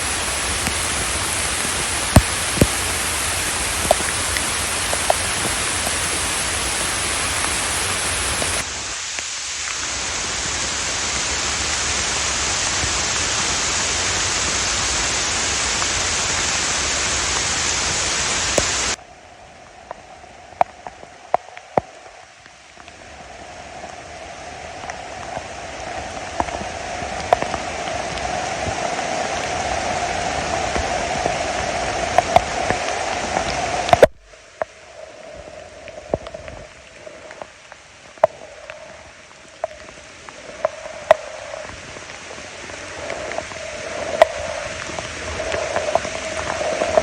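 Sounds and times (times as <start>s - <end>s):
drips clicking: 0.0s - 8.6s
rain falling: 0.0s - 47.0s.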